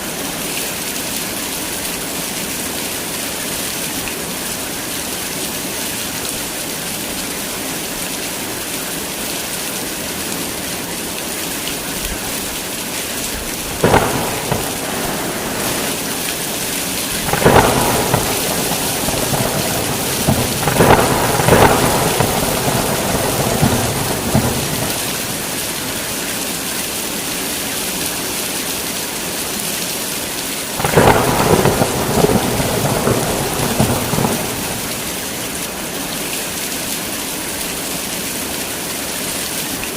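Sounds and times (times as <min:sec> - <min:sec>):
heavy rain falling: 0:00.0 - 0:39.9
crackling thunderclaps: 0:13.3 - 0:26.3, 0:30.8 - 0:35.7.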